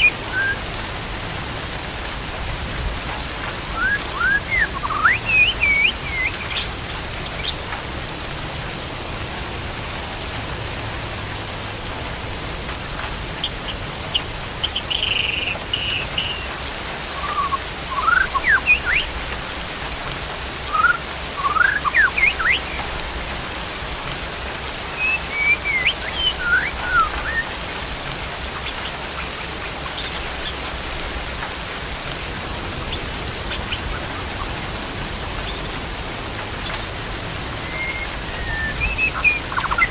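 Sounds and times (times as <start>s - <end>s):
songbird whistling: 0.0s - 0.6s, 3.7s - 7.6s, 14.2s - 16.5s, 17.1s - 19.1s, 20.7s - 22.9s, 24.9s - 27.6s, 37.6s - 39.9s
steady rain: 0.0s - 39.9s.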